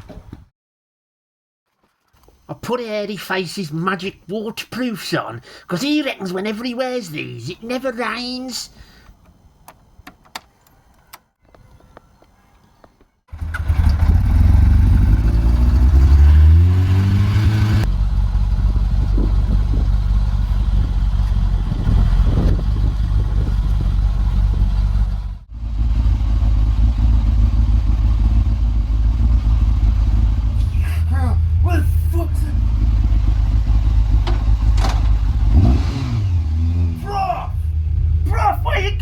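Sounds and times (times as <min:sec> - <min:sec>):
motorcycle engine: 0:13.3 - 0:39.0.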